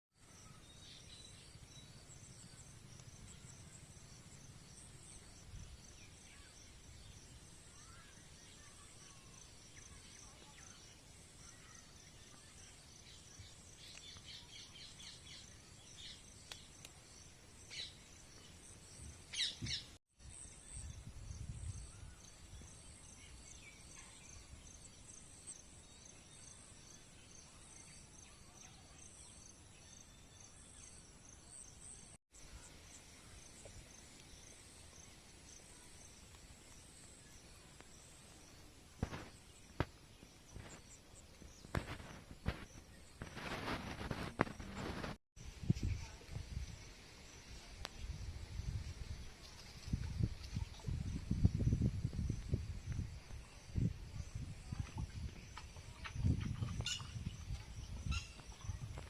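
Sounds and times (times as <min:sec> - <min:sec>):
insects chirping: 0:00.4 - 0:23.7, 0:29.4 - 0:59.0
bird chirps: 0:52.4 - 0:59.0.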